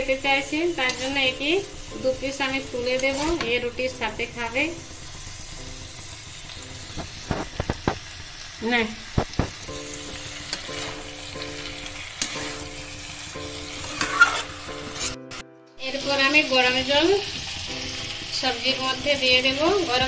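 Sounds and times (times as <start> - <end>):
vegetables sizzling in oil: 0.0 - 20.0
metal spatula scraping pan: 2.8 - 3.6, 10.5 - 11.1, 13.8 - 15.2.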